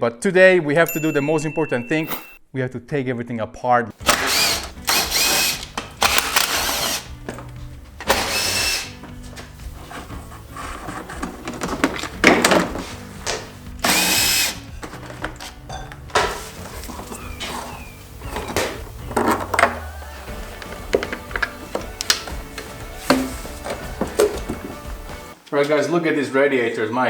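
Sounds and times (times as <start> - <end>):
power driver whirring: 4.0 - 7.2, 8.0 - 9.0, 13.8 - 14.8
background music with steady beat: 4.0 - 26.0.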